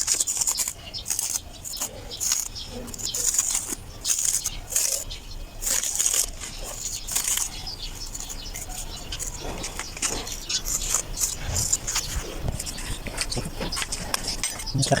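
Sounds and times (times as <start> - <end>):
hand scraping soil: 0.0 - 15.0.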